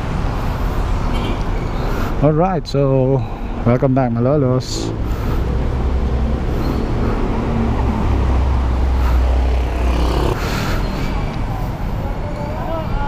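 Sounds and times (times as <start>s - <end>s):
road traffic: 0.0s - 13.0s
car engine running: 8.1s - 10.5s.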